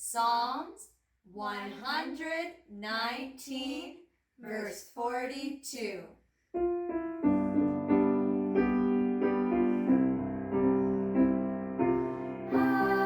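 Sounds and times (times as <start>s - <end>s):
piano chords: 6.6s - 13.0s.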